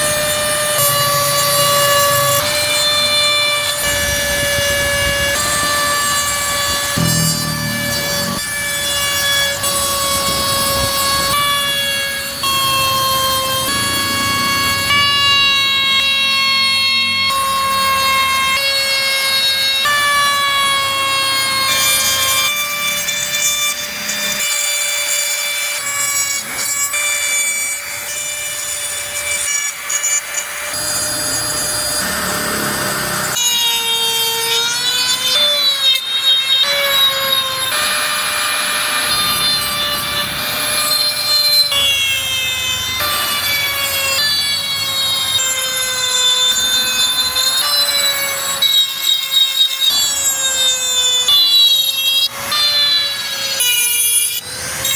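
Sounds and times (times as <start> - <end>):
rasp of cutting wood: 0.0 - 15.6
electric carving tool whining: 0.0 - 54.9.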